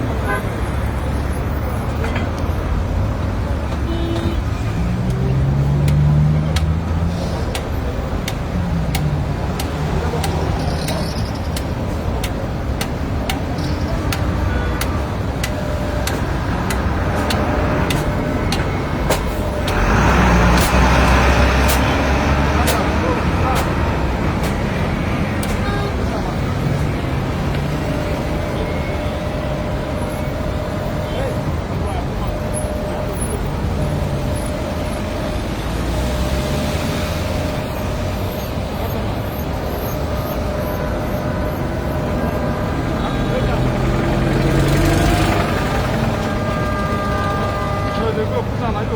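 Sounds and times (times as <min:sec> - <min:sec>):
traffic rushing: 0:00.0 - 0:48.9
vehicle engine rumble: 0:00.0 - 0:48.9
regular ticking: 0:05.0 - 0:25.7.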